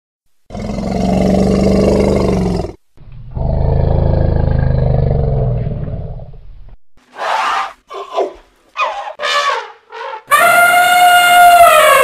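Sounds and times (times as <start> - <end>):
large wild animal calling: 7.3 - 12.0.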